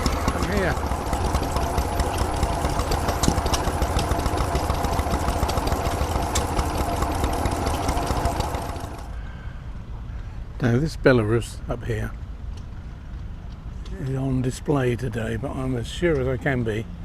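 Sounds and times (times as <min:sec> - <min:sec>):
stationary engine running: 0:00.0 - 0:09.2.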